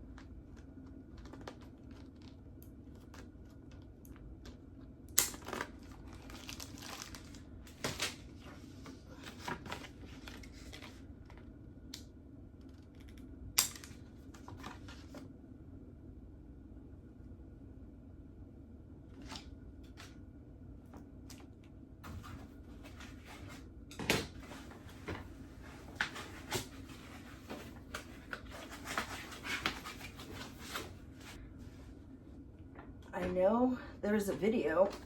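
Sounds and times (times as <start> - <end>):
plastic wrap crinkling: 5.3 - 8.2.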